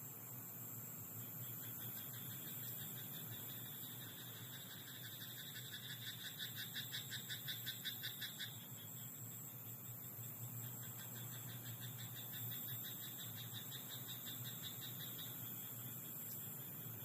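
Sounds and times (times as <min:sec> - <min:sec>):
steady high-pitched hiss: 0:00.0 - 0:17.0
frog croaking: 0:01.6 - 0:08.7, 0:10.8 - 0:15.5.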